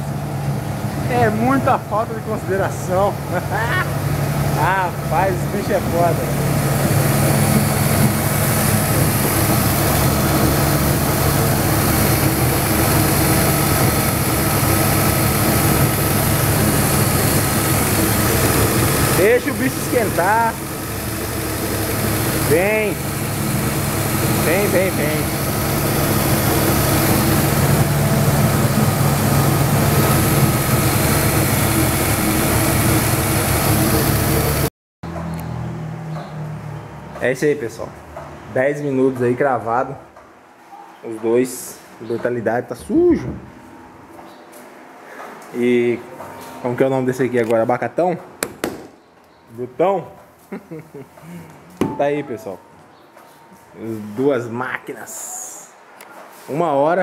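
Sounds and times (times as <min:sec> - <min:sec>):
car engines idling: 0:00.0 - 0:35.5.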